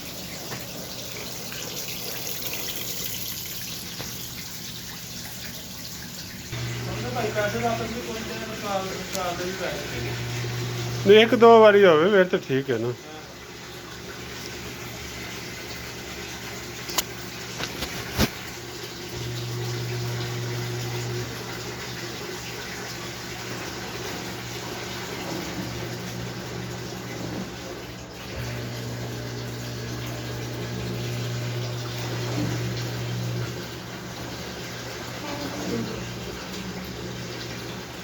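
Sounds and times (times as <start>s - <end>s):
water sloshing in washing machine: 0.0s - 38.0s
low motor hum: 6.5s - 11.4s, 19.1s - 21.6s, 24.0s - 38.0s.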